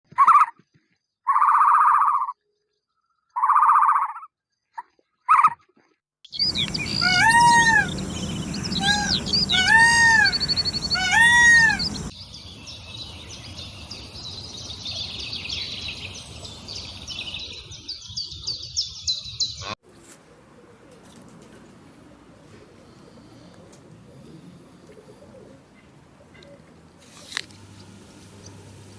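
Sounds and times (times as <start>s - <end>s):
birds whistling and chirping: 6.3s - 19.8s
small birds chattering: 6.3s - 19.8s.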